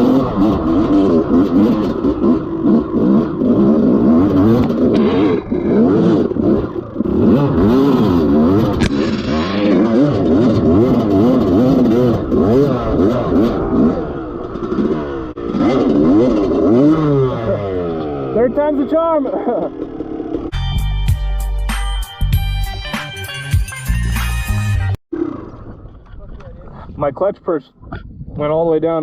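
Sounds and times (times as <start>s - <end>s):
dirt bike engine revving: 0.0s - 20.6s.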